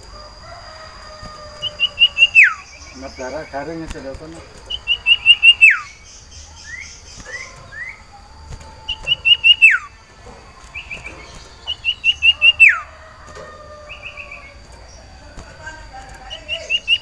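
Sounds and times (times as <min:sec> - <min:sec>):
bird singing whistled phrases: 0:01.7 - 0:03.6, 0:04.7 - 0:08.1, 0:08.9 - 0:10.0, 0:10.7 - 0:12.9, 0:16.3 - 0:17.0.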